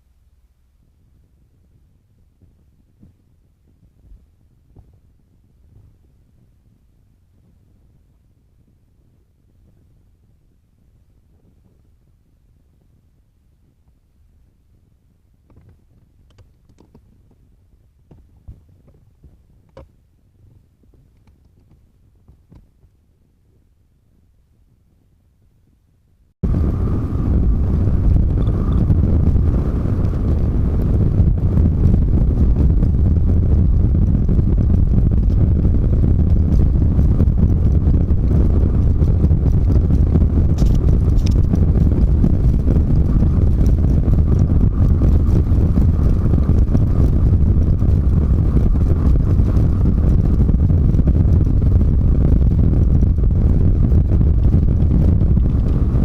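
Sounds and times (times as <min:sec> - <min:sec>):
truck engine and road noise: 0:26.4 - 0:32.7.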